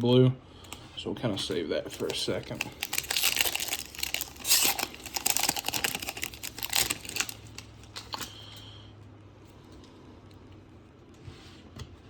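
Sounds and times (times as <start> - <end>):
cards being handled: 1.4 - 8.3
card pack wrapper crinkling: 1.5 - 8.3.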